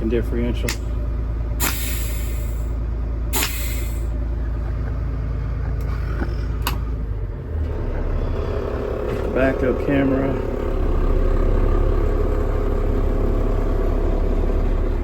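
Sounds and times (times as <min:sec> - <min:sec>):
diesel truck engine idling: 0:00.0 - 0:15.0
air brake hisses: 0:01.6 - 0:04.1.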